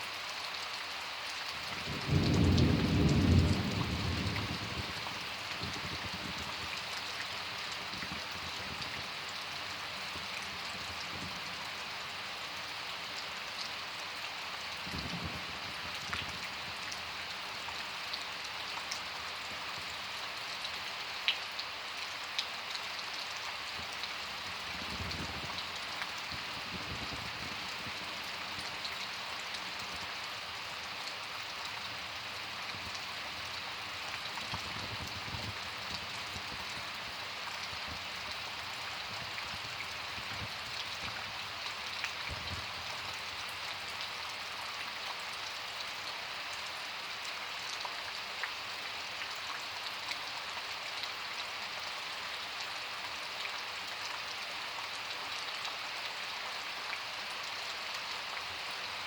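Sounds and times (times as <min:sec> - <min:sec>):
rain hissing: 0:00.0 - 0:59.0
raindrop ticks: 0:31.0 - 0:45.6.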